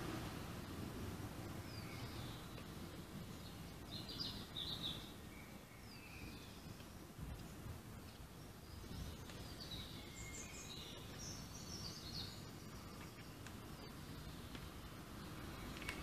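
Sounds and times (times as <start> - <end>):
faint bird chirps: 1.6 - 2.6, 3.3 - 14.6.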